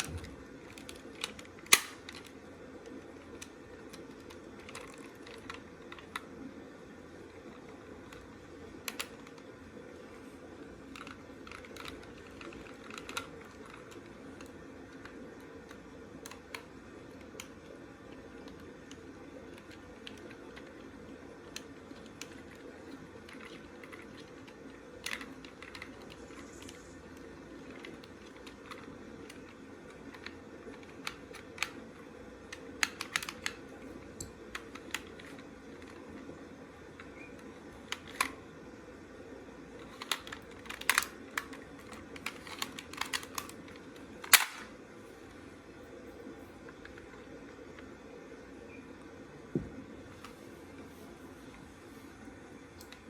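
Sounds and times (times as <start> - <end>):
plastic toy parts clicking: 0.0 - 2.4, 3.3 - 6.2, 8.8 - 9.4, 10.9 - 17.6, 21.5 - 26.9, 27.6 - 31.8, 32.5 - 33.6, 34.2 - 36.0, 37.9 - 38.4, 39.8 - 44.7
steady low hum: 0.0 - 53.0.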